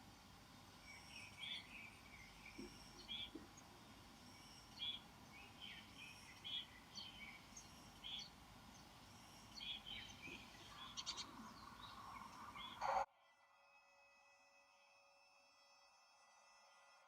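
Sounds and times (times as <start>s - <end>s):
birds chirping: 0.0s - 13.1s
faint background hiss: 0.0s - 13.1s.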